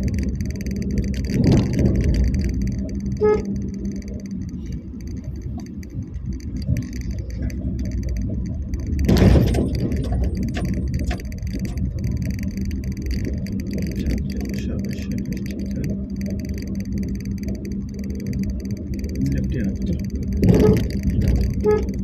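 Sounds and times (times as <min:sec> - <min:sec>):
engine and road rumble: 0:00.0 - 0:22.0
light rattles: 0:00.0 - 0:22.0
low hum: 0:00.0 - 0:22.0
loud bump: 0:09.1 - 0:11.8.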